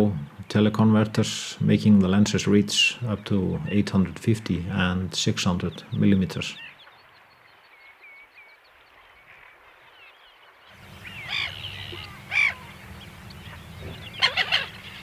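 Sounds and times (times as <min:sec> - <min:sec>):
low steady background: 0:00.0 - 0:07.7
birds chirping: 0:00.0 - 0:15.0
harsh bird calls: 0:02.8 - 0:15.0.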